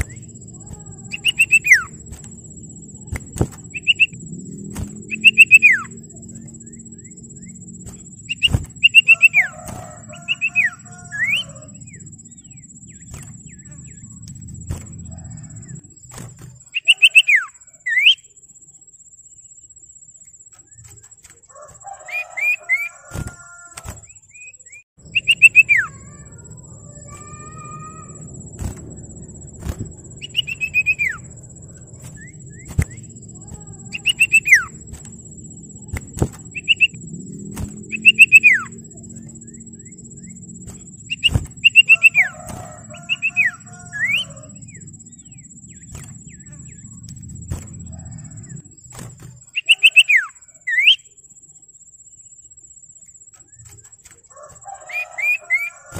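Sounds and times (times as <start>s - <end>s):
bird chirps and whistles: 0.0s - 2.0s, 3.0s - 4.2s, 4.8s - 7.6s, 8.2s - 15.7s, 16.6s - 18.3s, 24.0s - 28.8s, 29.6s - 31.4s, 32.0s - 34.8s, 35.8s - 37.0s, 37.6s - 38.9s, 39.5s - 46.9s, 49.5s - 51.1s
sharp clicks: 0.0s - 5.7s, 28.5s - 39.3s
low hum: 0.0s - 16.8s, 25.0s - 49.6s.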